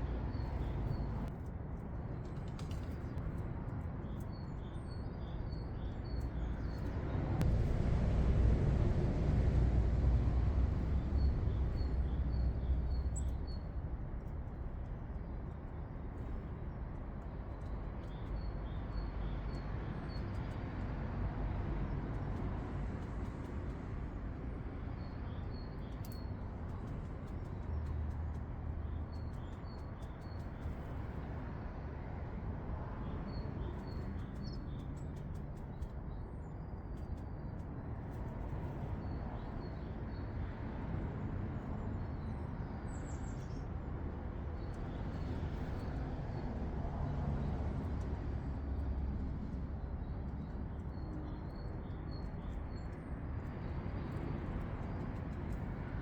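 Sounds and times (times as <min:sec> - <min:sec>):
low background rumble: 0:00.0 - 0:20.6
small birds chirping: 0:02.1 - 0:07.5, 0:10.8 - 0:20.6, 0:23.0 - 0:31.5, 0:33.0 - 0:46.4, 0:48.7 - 0:56.0.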